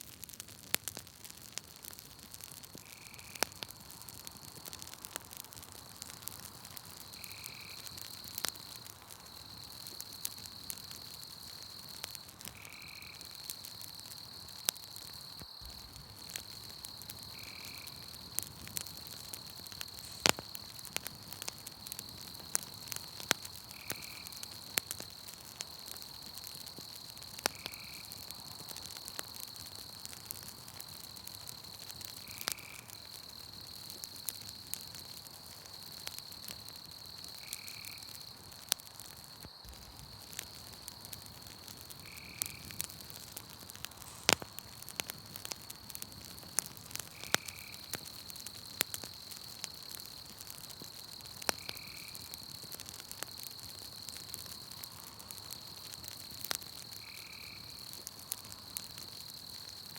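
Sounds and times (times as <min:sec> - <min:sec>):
campfire crackling: 0:00.0 - 0:59.9
night insects trilling: 0:01.9 - 0:59.9.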